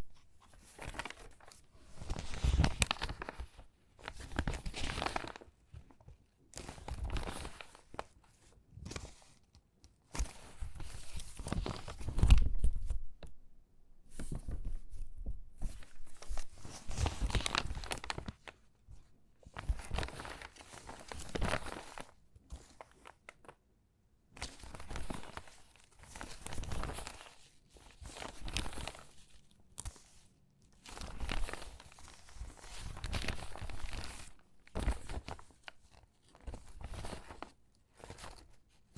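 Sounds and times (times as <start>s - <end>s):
magazine pages crinkling: 0.4s - 5.5s, 6.6s - 8.1s, 15.6s - 18.6s, 19.5s - 23.6s, 24.4s - 38.6s.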